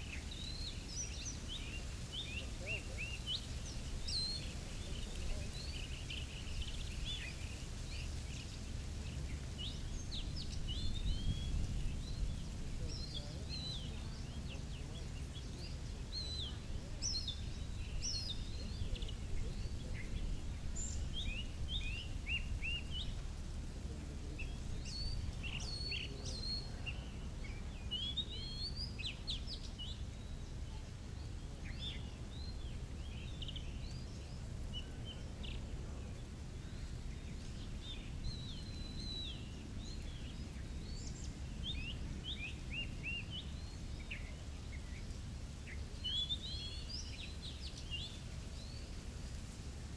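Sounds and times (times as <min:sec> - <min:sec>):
low steady rumble: 0:00.0 - 0:49.9
birds chirping and whistling: 0:24.4 - 0:30.6, 0:36.6 - 0:45.1, 0:45.7 - 0:48.9.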